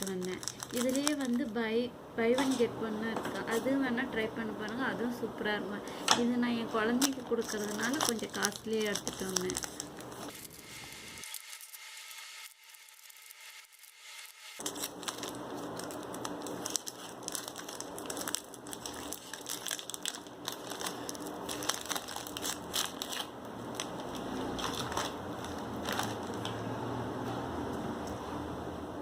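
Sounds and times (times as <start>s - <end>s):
plastic packaging crinkling: 0.0s - 1.6s, 6.9s - 26.6s.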